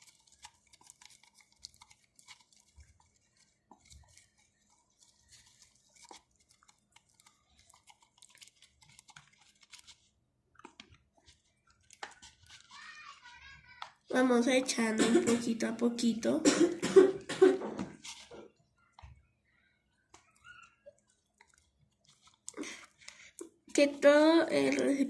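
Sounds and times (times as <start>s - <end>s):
stick stirring sticky slime: 0.0s - 16.4s, 17.0s - 25.0s.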